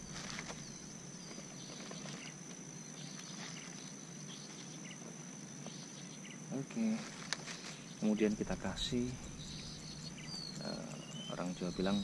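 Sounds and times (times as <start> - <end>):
insects droning: 0.0 - 12.0
faint rustling and light clicks: 7.0 - 7.9.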